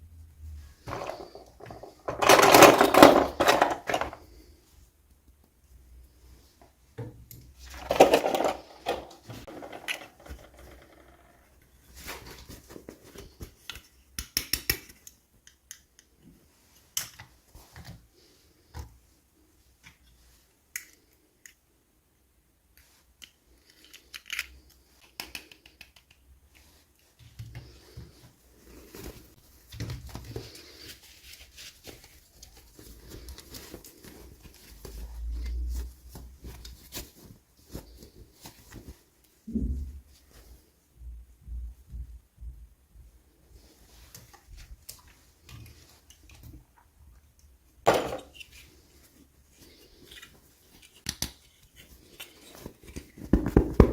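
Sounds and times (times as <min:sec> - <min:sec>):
toy packaging being handled: 0:00.8 - 0:04.5, 0:07.6 - 0:11.4, 0:47.9 - 0:53.9.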